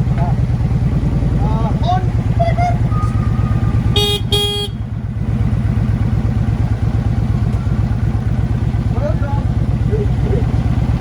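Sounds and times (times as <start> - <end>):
engine idling: 0.0 - 11.0
vehicle horn toots: 3.0 - 5.0.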